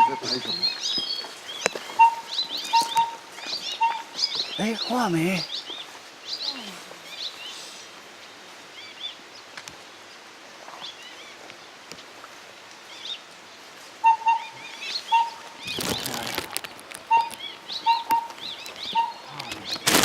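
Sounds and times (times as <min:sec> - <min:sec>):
high bird chirps: 0:00.0 - 0:06.5, 0:14.0 - 0:16.2, 0:17.1 - 0:19.8.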